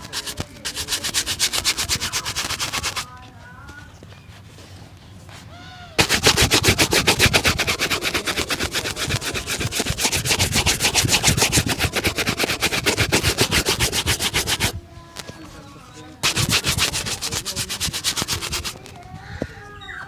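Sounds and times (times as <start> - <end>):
brush scrubbing leather shoe: 0.0 - 3.1, 6.0 - 14.8, 16.2 - 18.9.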